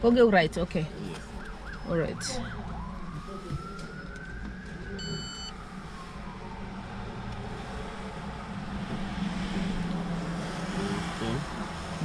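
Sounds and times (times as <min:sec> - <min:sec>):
vehicle engine rumble: 0:00.0 - 0:12.0
siren wailing: 0:01.2 - 0:08.5
short electronic beep: 0:05.0 - 0:05.5.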